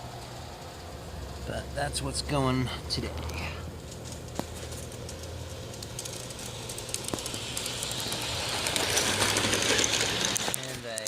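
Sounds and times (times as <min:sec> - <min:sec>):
wheels clicking over rails: 0:00.0 - 0:11.0
model train motor hum: 0:04.8 - 0:11.0.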